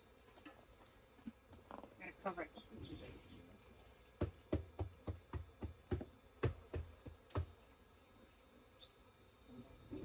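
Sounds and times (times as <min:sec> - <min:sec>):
knocks on beehive equipment: 0:04.2 - 0:07.6.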